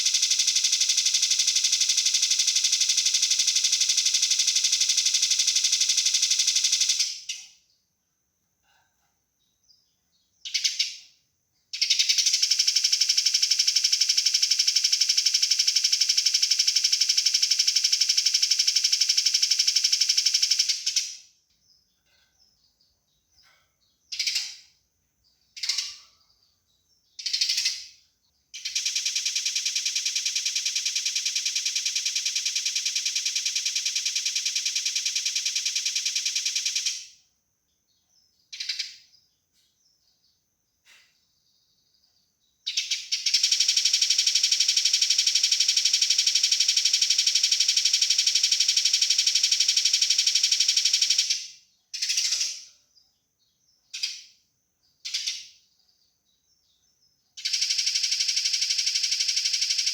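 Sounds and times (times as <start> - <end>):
sparrows rapid churring rattle: 0.0 - 7.5, 10.4 - 11.0, 11.8 - 37.0, 38.1 - 40.2, 42.0 - 59.9
short bird chirps: 21.5 - 28.8, 38.4 - 43.4.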